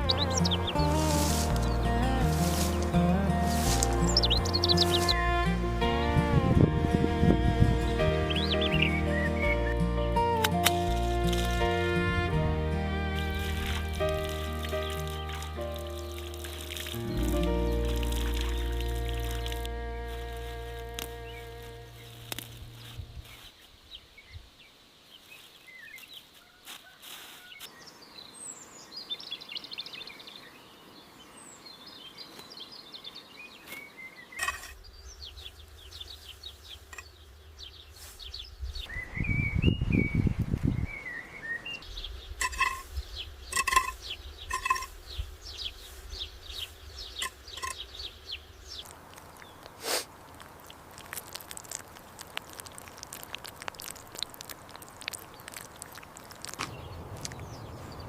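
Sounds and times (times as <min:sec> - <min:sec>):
birds chirping: 0:00.0 - 0:26.4, 0:27.7 - 0:58.0.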